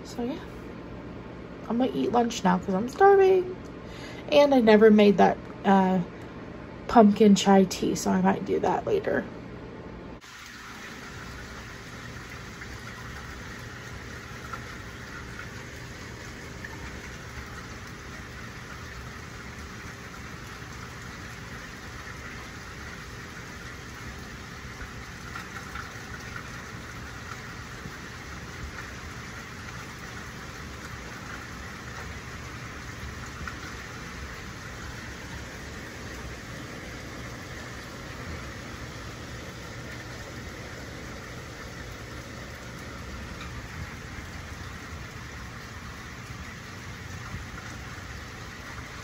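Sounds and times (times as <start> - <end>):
steady rain hiss: 0.0 - 49.0
water drips: 10.2 - 49.0.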